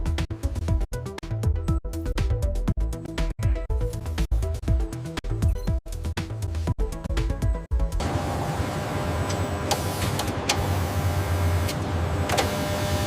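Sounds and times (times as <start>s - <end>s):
intro music: 0.0s - 9.1s
factory machinery humming: 8.0s - 13.0s.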